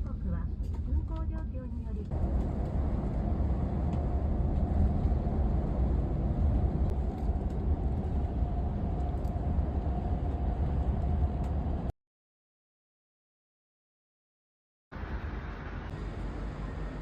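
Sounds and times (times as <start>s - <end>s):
vehicle rumble from inside cabin: 0.0s - 11.9s.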